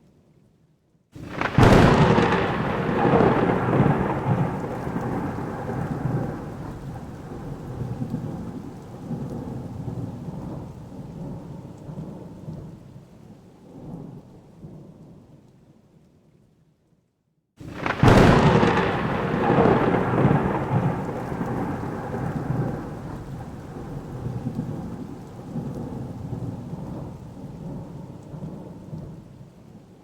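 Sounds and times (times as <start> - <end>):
thunderclap crack: 1.2 - 9.3, 17.6 - 27.8
rolling thunder rumble: 1.2 - 12.9, 17.6 - 29.5.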